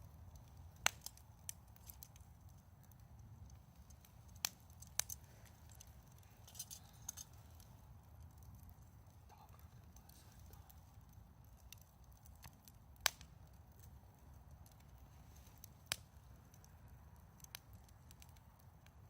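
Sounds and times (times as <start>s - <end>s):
campfire crackling: 0.0s - 19.0s
fire popping: 0.0s - 19.0s.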